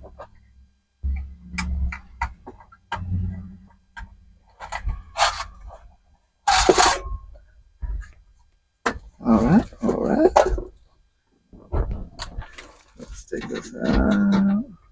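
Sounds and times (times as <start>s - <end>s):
metal scraping: 4.6s - 5.8s, 6.5s - 7.2s
dull thuds: 7.1s - 8.3s, 11.5s - 14.3s.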